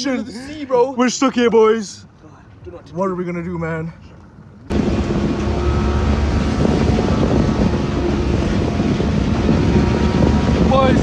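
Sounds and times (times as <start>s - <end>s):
wind buffeting microphone: 4.1s - 11.0s
motorboat engine: 4.3s - 11.0s.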